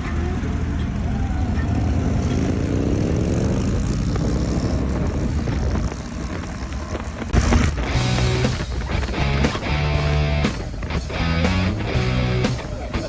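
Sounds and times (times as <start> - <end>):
motorcycle engine accelerating: 0.0 - 13.0
music: 7.9 - 13.0.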